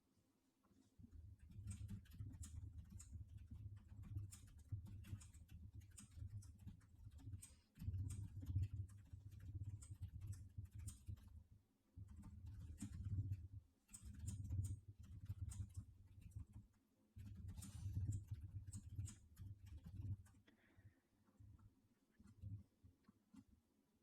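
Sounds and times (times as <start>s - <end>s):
faint low hum: 0.0s - 24.0s
small clicks: 1.4s - 11.3s, 12.1s - 20.6s.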